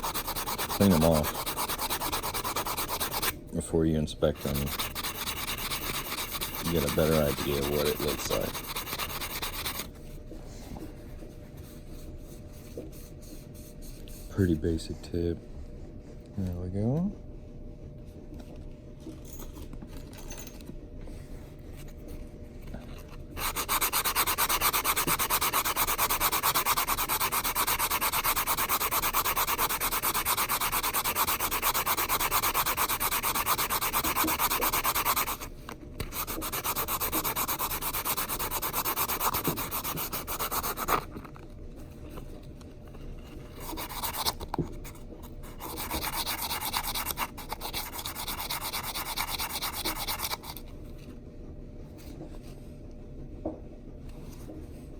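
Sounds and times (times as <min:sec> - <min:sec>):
metal ring sanded on nail file: 0:00.0 - 0:03.4, 0:04.2 - 0:09.9, 0:23.4 - 0:41.1, 0:43.6 - 0:44.4, 0:45.5 - 0:50.6.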